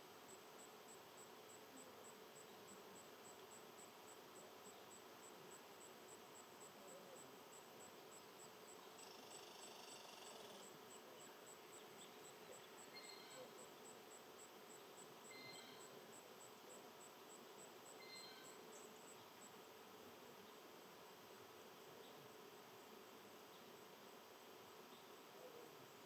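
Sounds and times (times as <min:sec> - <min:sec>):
cricket chirping: 0:00.1 - 0:19.7.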